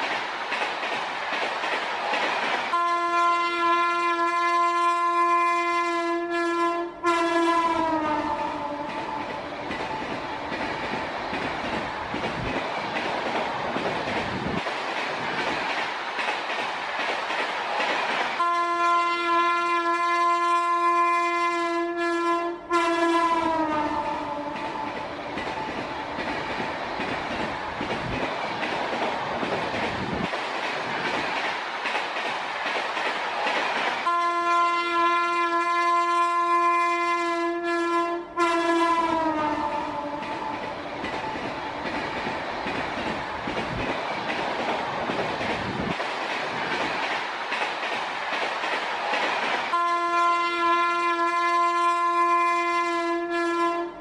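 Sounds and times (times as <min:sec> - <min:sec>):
train wheels rumbling and clattering: 0:00.0 - 0:05.8, 0:07.2 - 0:20.9, 0:22.8 - 0:37.0, 0:38.6 - 0:52.8
train horn blast: 0:02.7 - 0:09.2, 0:18.4 - 0:25.0, 0:34.0 - 0:40.5, 0:49.7 - 0:54.0.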